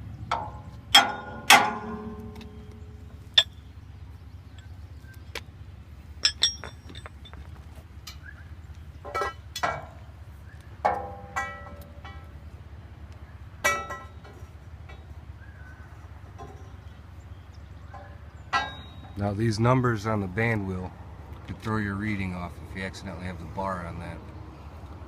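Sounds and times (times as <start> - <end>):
metal-on-metal strikes and clinks: 0.3 - 3.6, 6.2 - 8.2, 10.8 - 12.3, 13.6 - 15.2, 18.0 - 19.2.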